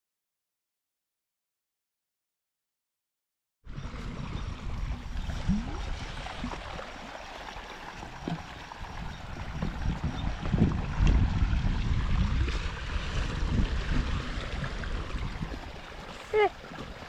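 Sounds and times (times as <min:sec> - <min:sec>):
water gurgles: 0:03.7 - 0:17.0
water running: 0:04.0 - 0:17.0.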